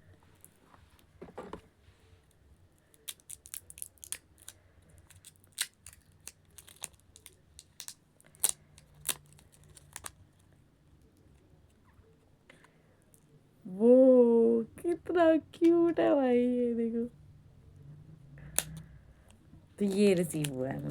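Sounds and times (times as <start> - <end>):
packaging crinkling and clicking: 2.9 - 10.2.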